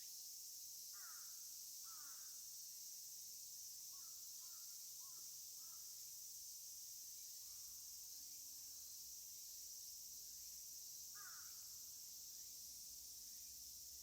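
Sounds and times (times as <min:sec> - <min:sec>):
insect drone: 0:00.0 - 0:14.0
crow cawing: 0:11.2 - 0:11.6.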